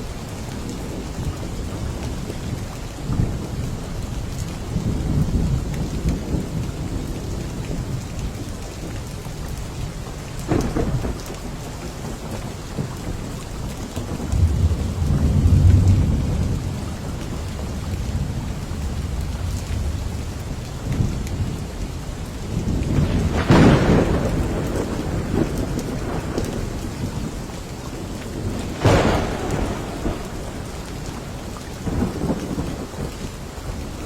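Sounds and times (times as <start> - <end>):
steady rain: 0.0 - 34.0
thunder rumbling: 10.2 - 34.0
sharp thunder clap: 14.0 - 21.8, 22.4 - 27.3, 28.3 - 33.2.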